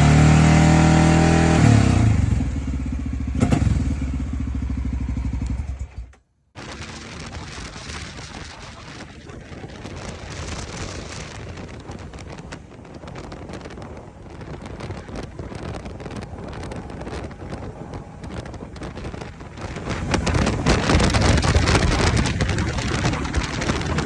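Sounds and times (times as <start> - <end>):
motorcycle engine running: 0.0 - 24.0
wind buffeting microphone: 6.6 - 24.0.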